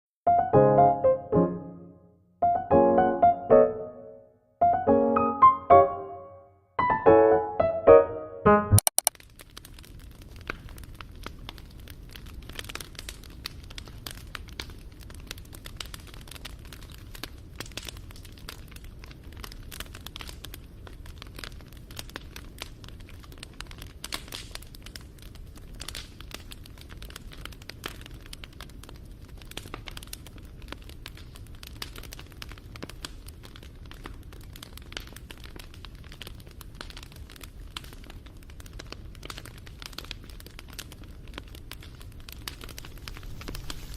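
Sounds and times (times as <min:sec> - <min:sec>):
wood fire crackling: 0:09.0 - 0:43.9.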